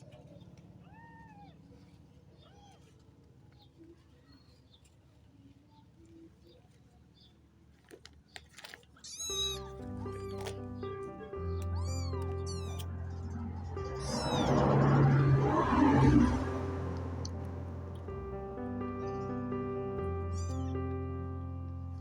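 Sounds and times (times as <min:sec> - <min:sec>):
kitten mewing: 0:09.0 - 0:14.5, 0:20.2 - 0:20.8
low steady hum: 0:09.8 - 0:22.0.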